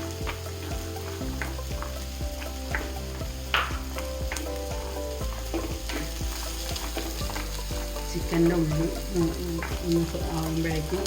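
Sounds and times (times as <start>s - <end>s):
nuts frying with sizzle and crackles: 0.0s - 11.0s
sharp pops in frying pan: 1.2s - 8.6s.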